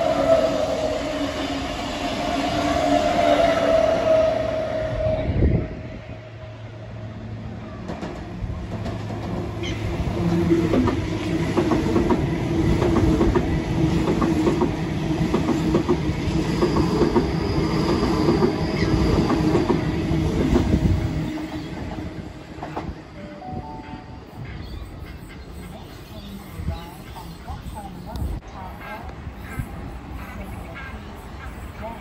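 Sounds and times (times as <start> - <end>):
train clickety-clack over rail joints: 7.6 - 23.2.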